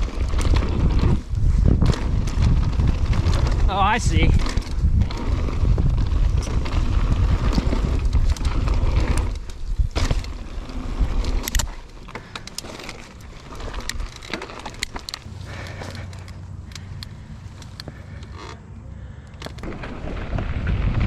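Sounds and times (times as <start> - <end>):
wind buffeting microphone: 0.0 - 11.8, 19.7 - 21.0
bike clicks and rattles: 0.0 - 21.0.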